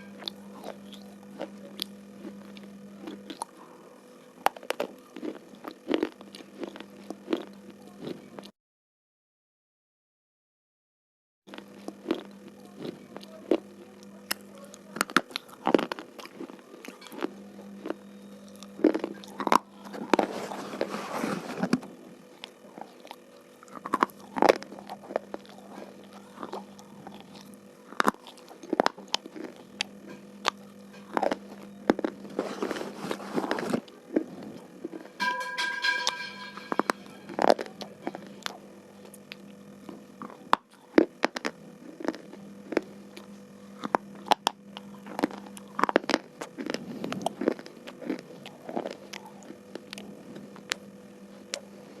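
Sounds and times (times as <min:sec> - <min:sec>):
steady low hum: 0:00.0 - 0:08.5, 0:11.5 - 0:52.0
grinding crunches: 0:04.4 - 0:08.4, 0:11.5 - 0:52.0.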